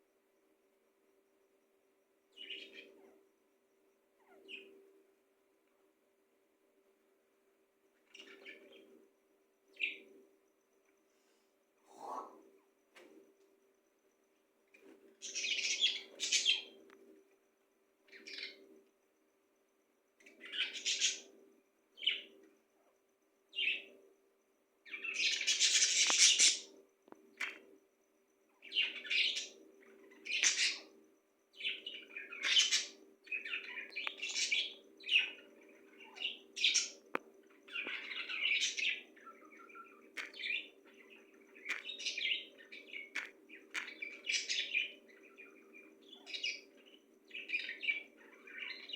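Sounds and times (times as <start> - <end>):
pet birds chirping: 2.3 - 3.2, 4.2 - 4.8, 8.0 - 9.0, 9.7 - 10.1, 14.7 - 17.0, 18.0 - 18.7, 20.2 - 22.5, 23.5 - 24.0, 24.8 - 27.7, 28.5 - 48.9.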